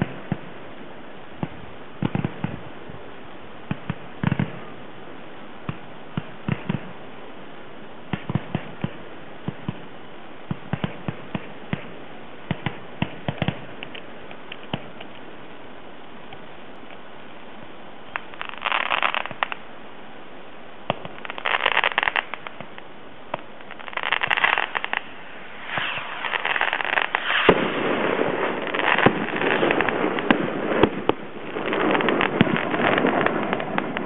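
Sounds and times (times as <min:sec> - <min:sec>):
sharp firework pops: 0:00.0 - 0:00.5, 0:01.4 - 0:03.0, 0:03.6 - 0:04.7, 0:05.6 - 0:07.0, 0:08.1 - 0:09.9, 0:10.5 - 0:15.3, 0:18.1 - 0:19.6, 0:20.9 - 0:34.0
fireworks crackling bursts: 0:00.0 - 0:34.0.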